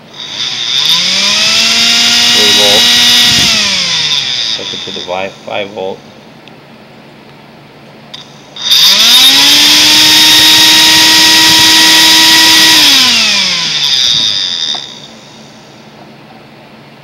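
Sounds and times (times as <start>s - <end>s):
electric motor whine: 0.0s - 5.4s, 8.2s - 15.8s.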